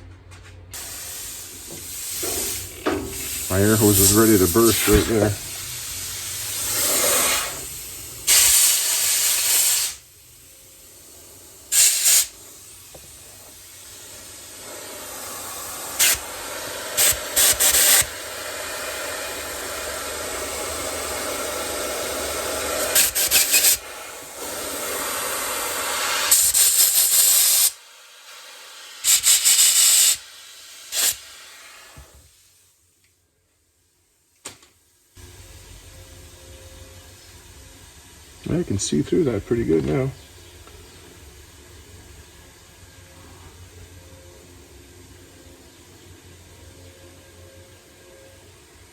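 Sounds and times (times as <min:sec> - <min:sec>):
compressed air blasts: 0:00.8 - 0:32.4
air hose hissing: 0:00.8 - 0:32.7.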